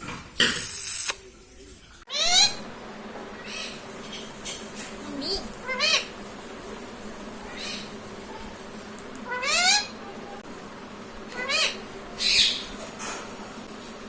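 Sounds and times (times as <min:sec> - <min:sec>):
parrot harsh screech: 0:02.1 - 0:02.6
parrot squeaky calls: 0:02.1 - 0:02.6, 0:05.6 - 0:06.1, 0:09.3 - 0:10.0, 0:11.4 - 0:12.7.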